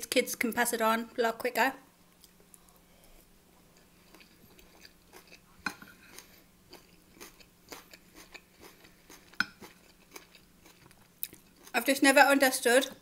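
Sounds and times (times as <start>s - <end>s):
close-mic chewing: 2.2s - 12.1s.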